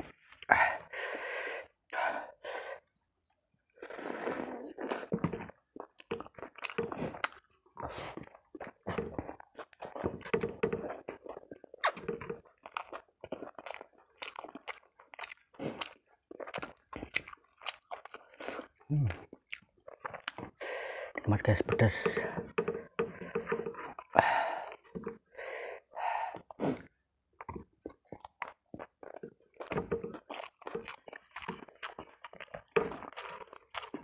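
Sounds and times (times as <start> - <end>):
wet chewing sounds: 0.0 - 34.0.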